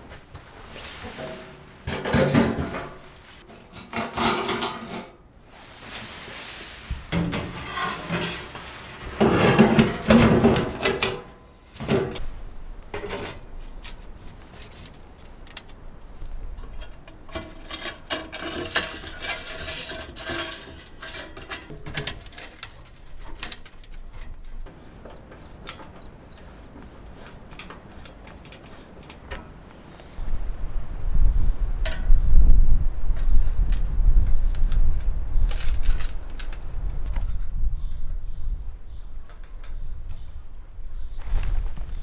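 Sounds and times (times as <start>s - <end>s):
rustling: 0.0s - 3.7s, 5.4s - 31.0s, 33.0s - 42.0s
objects knocking and clattering: 1.0s - 5.2s, 6.9s - 12.3s, 16.6s - 29.7s.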